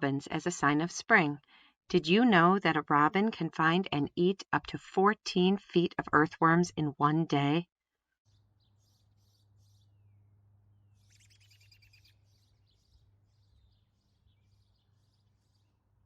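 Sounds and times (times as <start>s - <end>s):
birds chirping and trilling: 8.3s - 16.0s.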